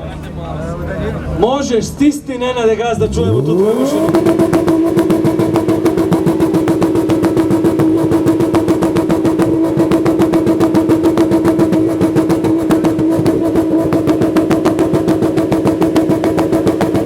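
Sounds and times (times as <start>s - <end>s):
car exhaust drone at high revs: 0.1s - 17.0s.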